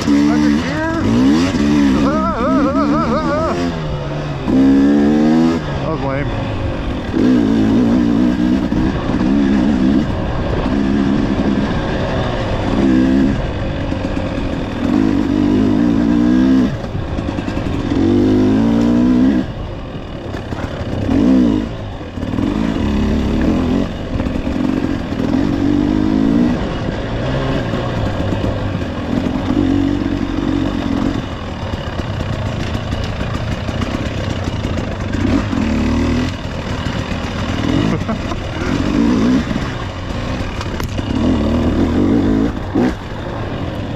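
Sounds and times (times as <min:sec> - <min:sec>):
off-road vehicle engine revving: 0:00.0 - 0:43.9.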